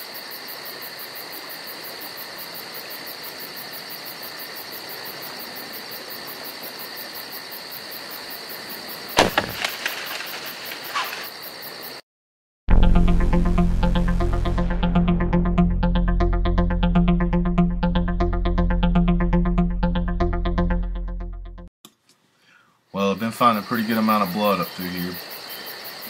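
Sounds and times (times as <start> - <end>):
crickets and insects chirping: 0.0 - 12.0, 22.9 - 26.0
bow shot crack: 9.2 - 11.2
rustling: 9.2 - 11.3.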